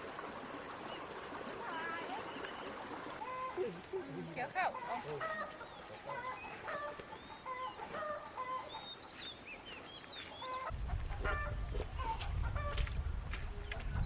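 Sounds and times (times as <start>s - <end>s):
small birds chirping: 1.6s - 14.0s
chickens clucking: 3.1s - 9.0s, 10.4s - 13.0s.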